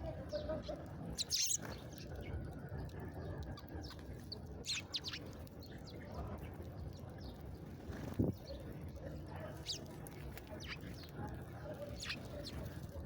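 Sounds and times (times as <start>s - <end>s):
low background noise: 0.0s - 13.0s
small birds chirping: 0.3s - 2.5s, 3.8s - 8.8s, 9.4s - 13.0s.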